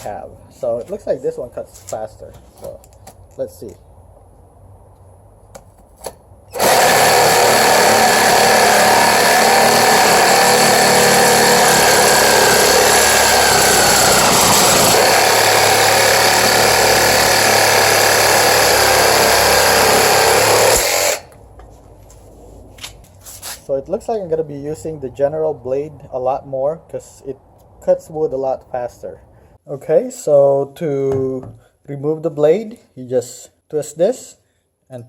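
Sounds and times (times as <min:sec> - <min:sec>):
reciprocating saw cutting wood: 0:06.5 - 0:21.3.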